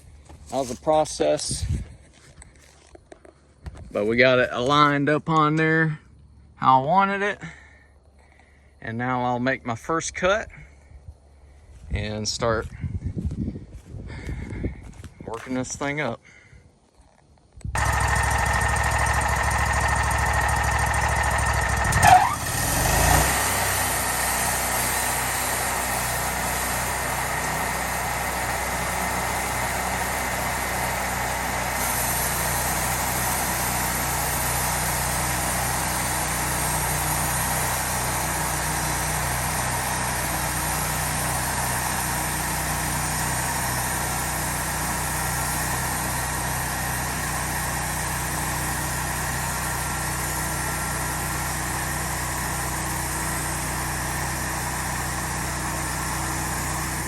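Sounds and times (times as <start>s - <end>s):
sawmill gasoline engine running: 17.8s - 57.0s.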